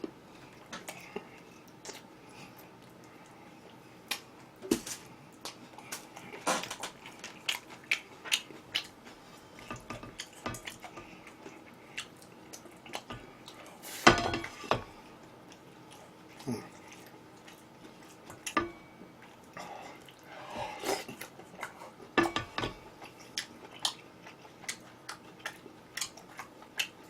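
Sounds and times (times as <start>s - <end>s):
chewing: 0.4s - 13.8s, 15.2s - 22.0s, 22.9s - 27.0s
dishes clattering: 14.0s - 14.9s, 22.2s - 22.8s.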